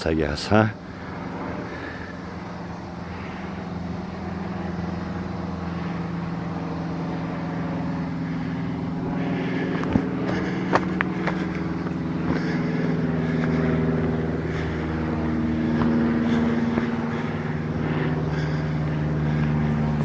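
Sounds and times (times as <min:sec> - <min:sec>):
engine drone: 0:00.0 - 0:20.0.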